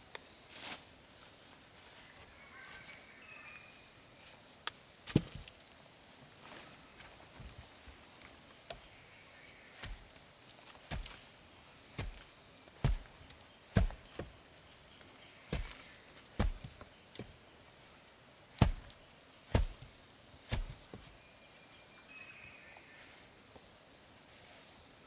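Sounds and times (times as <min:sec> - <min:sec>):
axe chopping wood: 0:09.8 - 0:10.2, 0:10.9 - 0:11.2, 0:12.0 - 0:14.4, 0:15.5 - 0:17.3, 0:18.6 - 0:21.1.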